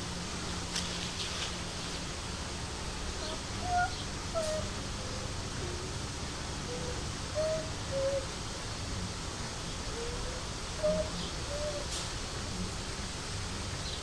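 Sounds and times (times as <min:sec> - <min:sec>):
steady low rumble: 0:00.0 - 0:14.0
bird whistling: 0:03.2 - 0:04.7, 0:06.7 - 0:08.3, 0:10.0 - 0:11.9.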